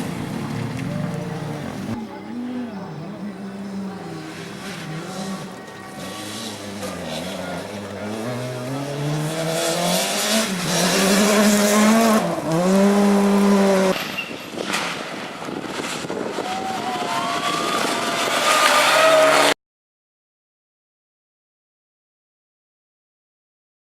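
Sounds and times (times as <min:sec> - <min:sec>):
rally car engine revving: 0:00.0 - 0:14.0, 0:14.7 - 0:19.6.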